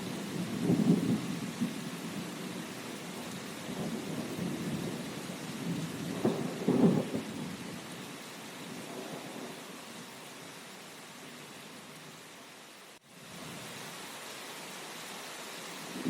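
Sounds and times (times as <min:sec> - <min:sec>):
steady rain: 0:00.0 - 0:16.0
thunder rumbling: 0:00.2 - 0:02.6, 0:03.7 - 0:07.7.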